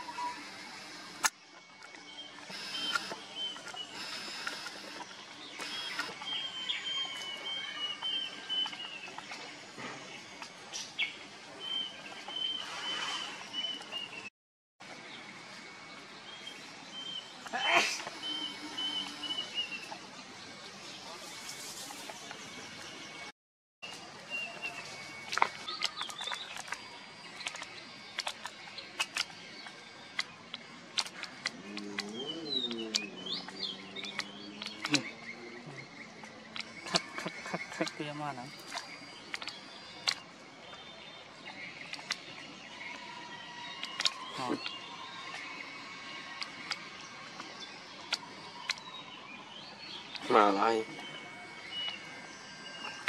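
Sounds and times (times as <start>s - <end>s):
birds chirping: 0.0s - 14.3s, 15.1s - 53.0s
sharp clicks: 2.5s - 6.2s.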